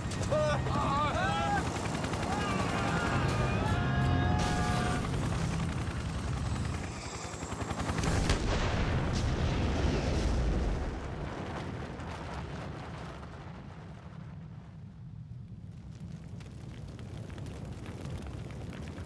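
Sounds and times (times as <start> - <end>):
helicopter crash roar: 0.0 - 11.7
explosion cracks: 8.0 - 14.4.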